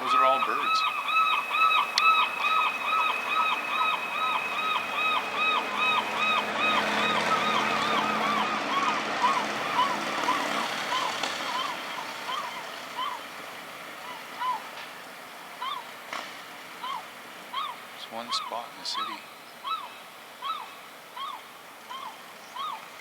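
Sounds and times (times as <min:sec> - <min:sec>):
siren yelping: 0:00.0 - 0:13.3
traffic rumbling: 0:00.0 - 0:19.5.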